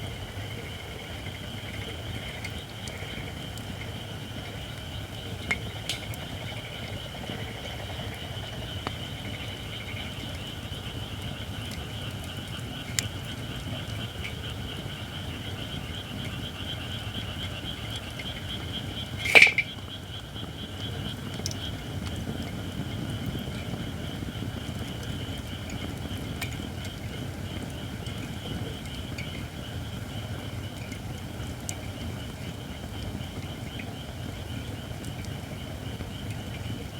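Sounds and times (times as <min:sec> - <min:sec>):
wood fire crackling: 0:00.0 - 0:36.9
loud pop from fire: 0:19.2 - 0:19.8.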